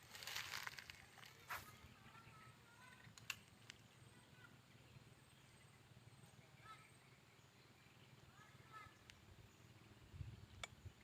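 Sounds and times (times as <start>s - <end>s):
sharp clicks: 3.1s - 3.8s.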